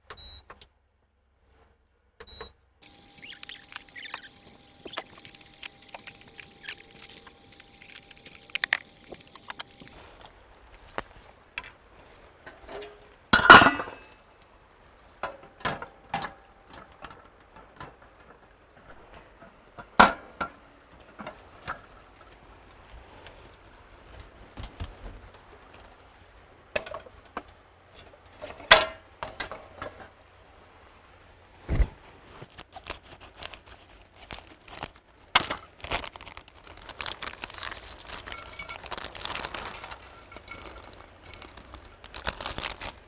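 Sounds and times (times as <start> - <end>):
clinks and knocks of hard objects: 2.8 - 14.3, 37.0 - 42.9
faint steady hiss: 2.8 - 43.0.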